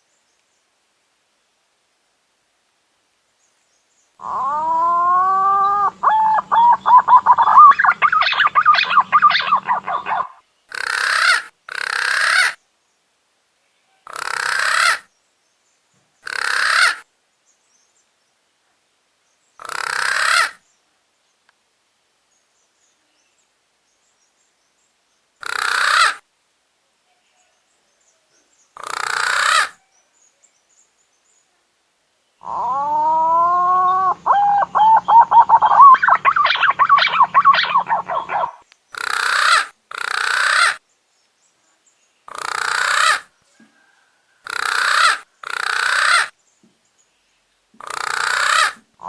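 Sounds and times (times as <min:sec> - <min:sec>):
short rasping bird calls: 0:04.2 - 0:12.6, 0:14.1 - 0:15.0, 0:16.2 - 0:17.0, 0:25.4 - 0:26.2, 0:28.8 - 0:29.8, 0:32.4 - 0:40.8, 0:42.3 - 0:43.3, 0:44.4 - 0:46.3, 0:47.8 - 0:48.8
pigeon whistled song with trills: 0:05.7 - 0:10.3, 0:34.3 - 0:38.6.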